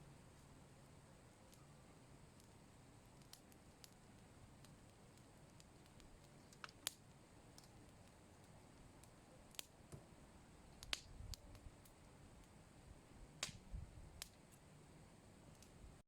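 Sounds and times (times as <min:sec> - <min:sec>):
faint sharp clicks: 0:10.8 - 0:11.7, 0:13.4 - 0:13.6.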